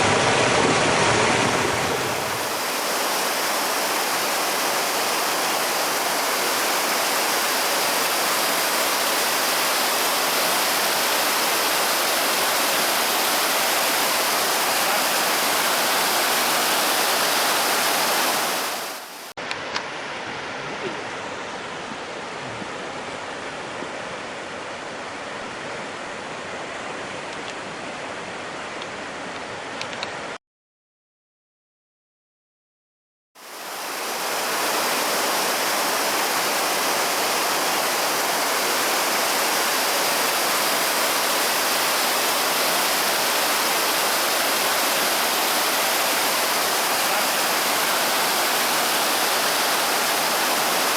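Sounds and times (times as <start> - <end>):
stream water rushing: 0.0 - 19.7, 33.4 - 50.9.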